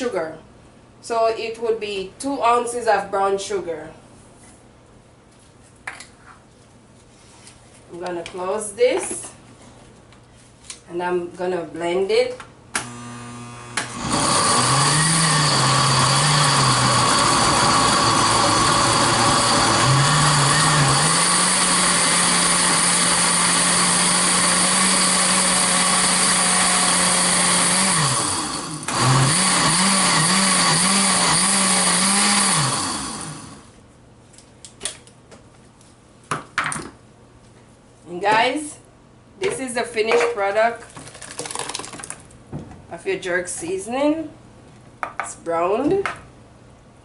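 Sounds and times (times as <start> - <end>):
electric blender running: 12.8 - 33.7.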